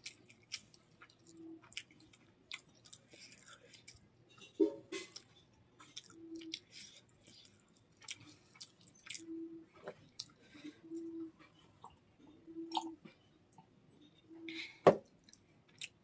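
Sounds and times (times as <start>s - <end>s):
wet chewing and mouth smacks: 0.0s - 4.1s, 5.0s - 10.4s, 12.7s - 13.7s.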